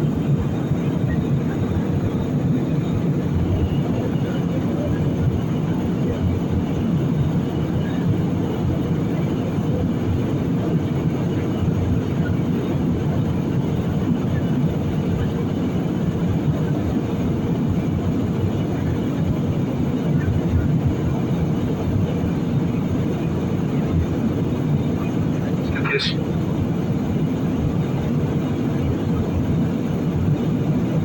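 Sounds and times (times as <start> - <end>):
airliner cabin rumble: 0.0 - 31.0.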